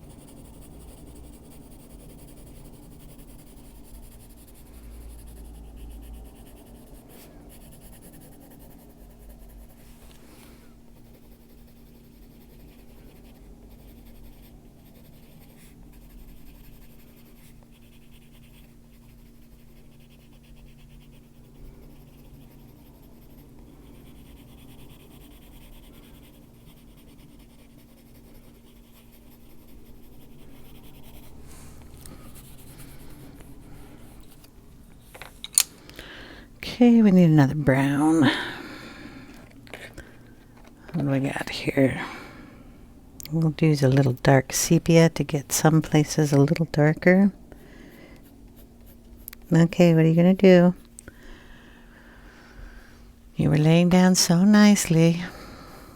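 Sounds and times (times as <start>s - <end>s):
coloured pencil scratching on paper: 0.0s - 34.5s, 43.3s - 50.8s.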